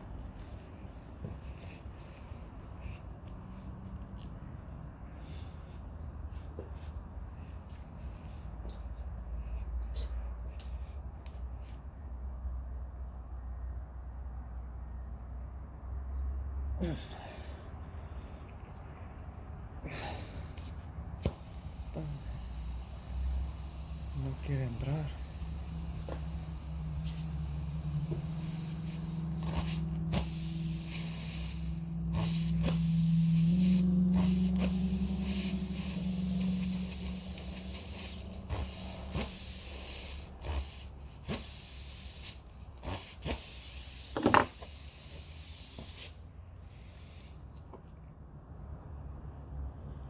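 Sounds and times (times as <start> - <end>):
air hissing from tyre: 4.9 - 8.7, 19.8 - 47.9
steady low hum: 16.8 - 47.7.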